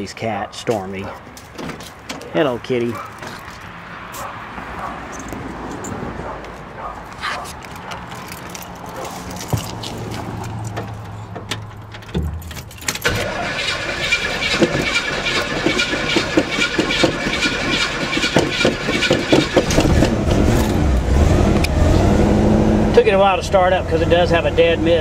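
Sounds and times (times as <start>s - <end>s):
starter cranking car engine: 12.9s - 21.0s.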